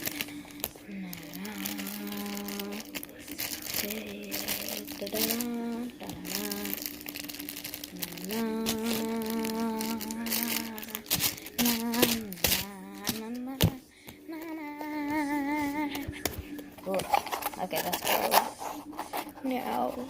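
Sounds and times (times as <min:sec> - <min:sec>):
girl humming a tune: 0:00.0 - 0:02.9, 0:03.8 - 0:06.9, 0:07.8 - 0:16.2
hands handling things: 0:00.0 - 0:20.0.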